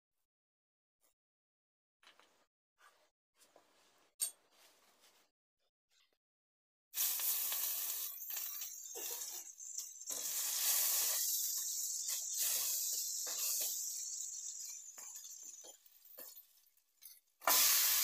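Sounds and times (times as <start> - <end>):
food sizzling in hot oil: 7.0 - 18.0.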